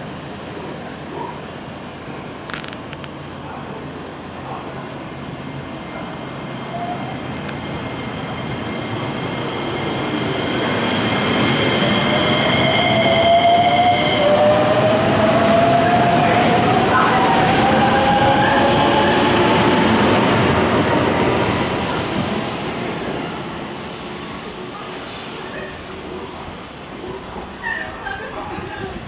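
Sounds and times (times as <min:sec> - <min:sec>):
electric train passing: 0:00.0 - 0:29.0
high-pitched squeal: 0:06.6 - 0:22.0.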